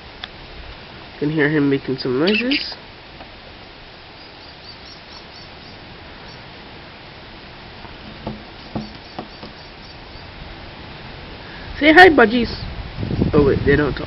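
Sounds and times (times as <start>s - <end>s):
budgerigars chirping: 2.2s - 2.8s, 4.2s - 6.5s, 8.1s - 10.3s
soft knocks: 7.8s - 9.6s.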